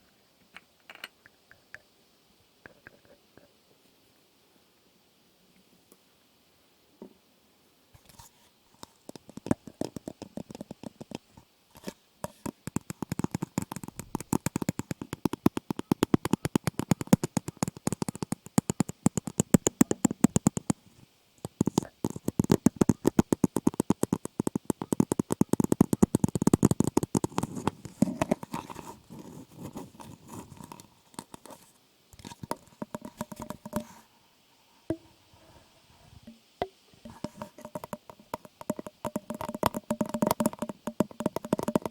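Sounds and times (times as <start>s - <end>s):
crackling against microphone: 8.0s - 34.1s, 37.0s - 41.9s.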